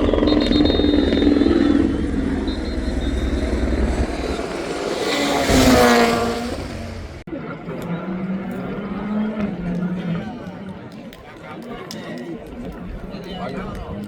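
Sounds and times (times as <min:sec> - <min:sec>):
rally car engine: 0:00.0 - 0:10.2
car passing close by: 0:01.7 - 0:07.3.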